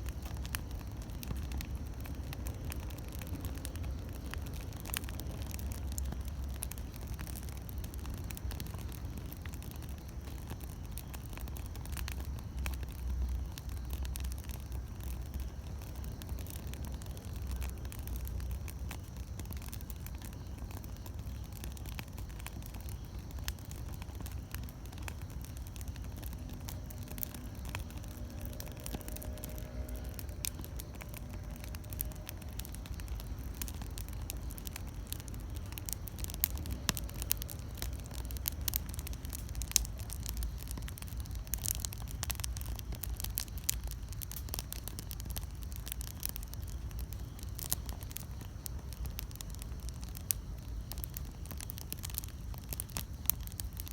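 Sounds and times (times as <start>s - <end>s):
campfire crackling: 0.0s - 53.9s
fire pops and snaps: 0.0s - 53.9s
low steady rumble: 0.0s - 53.9s.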